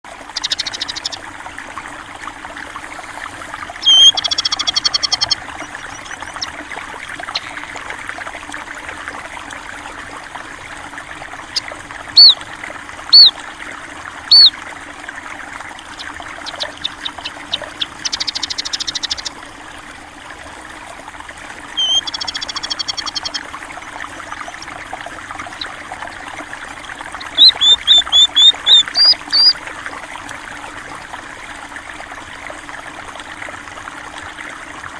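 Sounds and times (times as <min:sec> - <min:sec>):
stream trickling: 0:00.0 - 0:34.9
small birds chirping and trilling: 0:00.3 - 0:01.2, 0:03.8 - 0:07.5, 0:11.6 - 0:12.4, 0:13.1 - 0:13.3, 0:14.3 - 0:14.6, 0:15.9 - 0:19.4, 0:21.8 - 0:23.5, 0:24.3 - 0:24.8, 0:25.4 - 0:25.8, 0:26.8 - 0:29.6.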